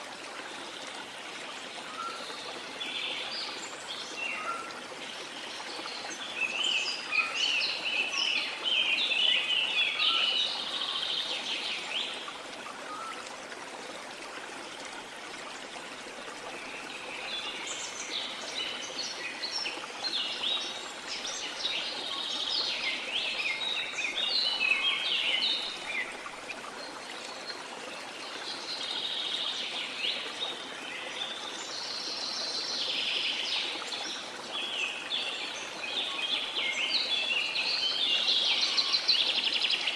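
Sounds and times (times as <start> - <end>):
songbirds singing: 16.4 - 39.9.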